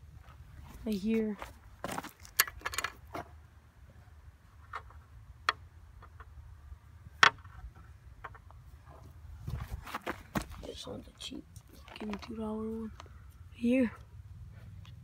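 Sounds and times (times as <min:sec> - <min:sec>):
hard objects clicking and knocking: 0:02.2 - 0:03.3.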